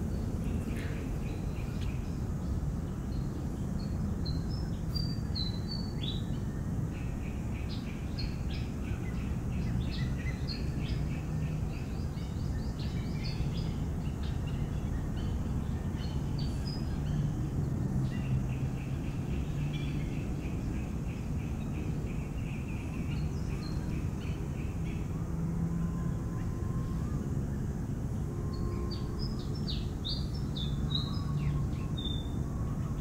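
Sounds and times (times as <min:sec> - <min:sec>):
birds chirping: 0:00.0 - 0:25.1.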